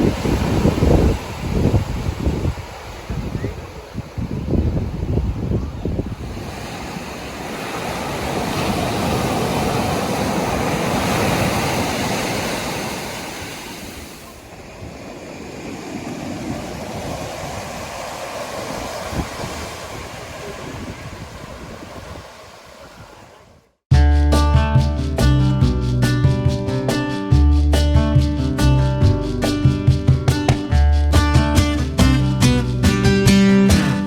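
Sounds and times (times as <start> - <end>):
ocean surf washing on beach: 0.0 - 23.8.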